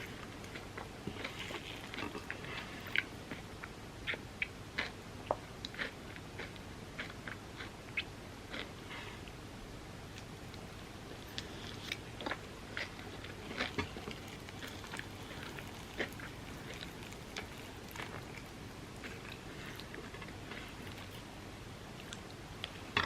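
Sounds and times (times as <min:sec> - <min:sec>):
chewing crunchy food: 0:00.0 - 0:05.0, 0:05.6 - 0:09.3, 0:11.2 - 0:23.0.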